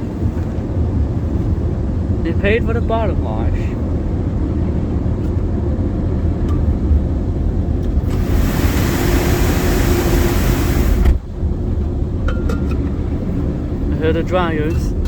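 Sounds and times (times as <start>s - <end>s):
low rumble: 0.8s - 14.1s
car wash jets hissing: 7.9s - 11.3s.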